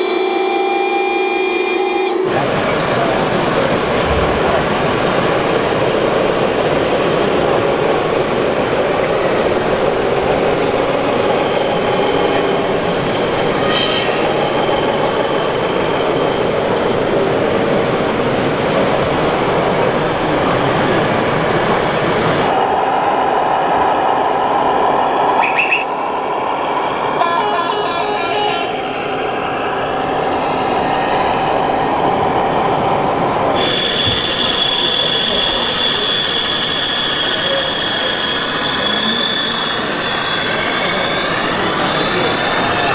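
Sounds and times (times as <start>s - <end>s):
electric motors and gearing running: 0.0s - 22.6s, 33.4s - 42.9s
hissing squeal: 4.8s - 18.2s, 25.3s - 32.3s, 33.5s - 42.9s
high whine: 21.5s - 42.9s
electric motors whirring: 33.6s - 42.9s.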